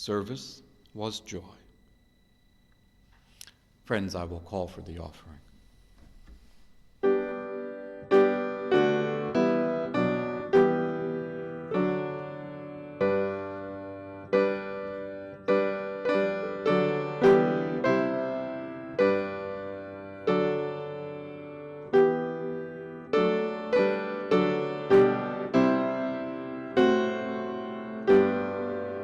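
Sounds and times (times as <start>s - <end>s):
slow piano chords: 5.8s - 29.0s.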